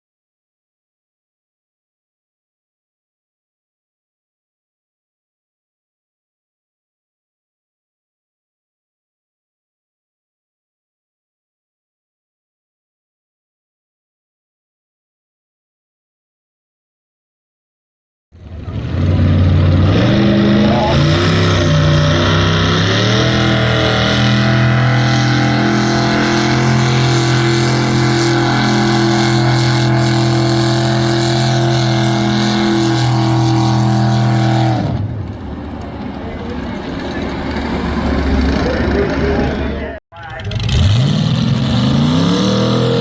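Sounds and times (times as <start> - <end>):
tractor engine revving: 18.4 - 43.0.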